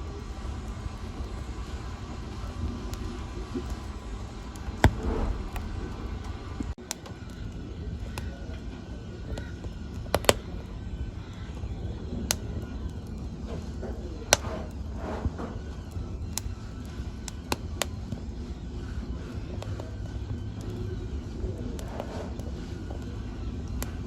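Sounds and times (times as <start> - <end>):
low steady rumble: 0.0 - 24.0
wood fire crackling and popping: 0.0 - 24.0.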